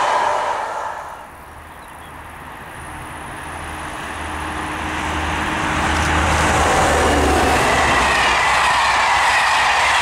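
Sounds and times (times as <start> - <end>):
diesel locomotive engine drone: 0.0 - 10.0
rush of wheels on rails: 0.0 - 10.0.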